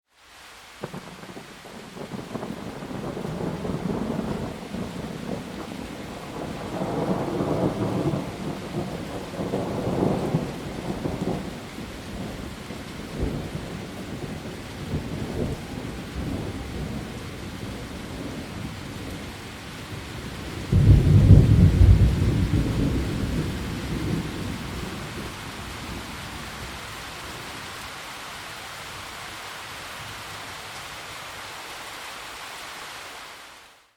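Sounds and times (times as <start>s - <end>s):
steady rain: 0.1s - 33.9s
thunder rolling: 20.5s - 26.7s
loud thunder clap: 20.7s - 25.0s.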